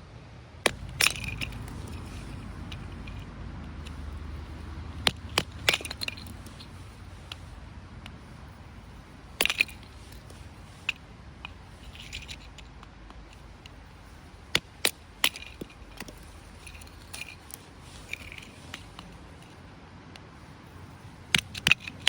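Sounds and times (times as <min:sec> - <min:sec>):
firewood knocking: 0:00.7 - 0:03.2
wood scraping: 0:00.7 - 0:19.7.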